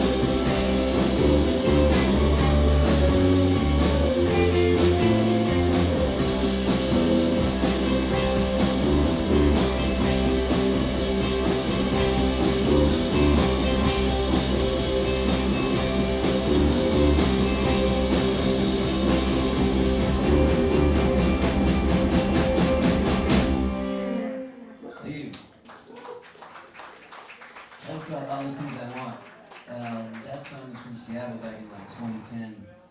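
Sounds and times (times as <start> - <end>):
drum kit steady beat: 0.0 - 24.1
bass guitar: 0.0 - 24.4
guitars: 0.0 - 24.7.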